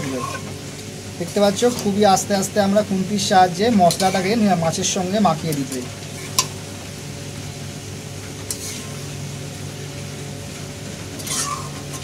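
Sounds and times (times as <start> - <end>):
fish sizzling in a pan: 3.5 - 12.0
spatula mixing: 8.4 - 9.1, 11.2 - 12.0.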